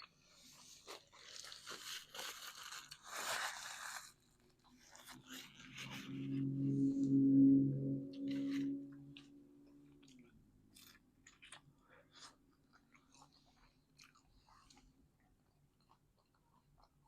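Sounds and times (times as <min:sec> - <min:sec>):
close-up chewing: 0:10.1 - 0:17.0.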